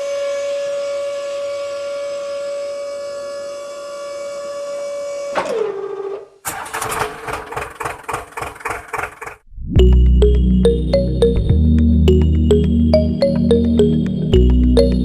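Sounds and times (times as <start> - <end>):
small electric motor whine: 0.0 - 5.4.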